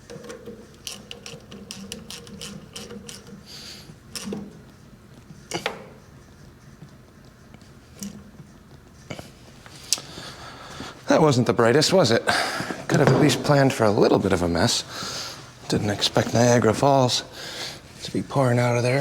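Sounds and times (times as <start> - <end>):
metal tools knocking and clanking: 12.9 - 13.8.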